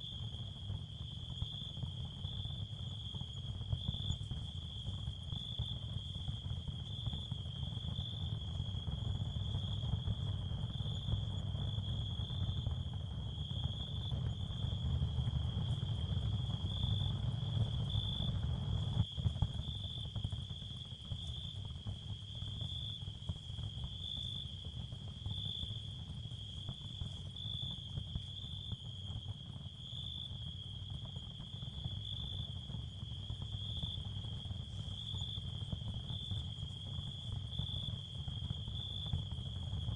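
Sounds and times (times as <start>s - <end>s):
high cricket chirring: 25.3s - 39.9s.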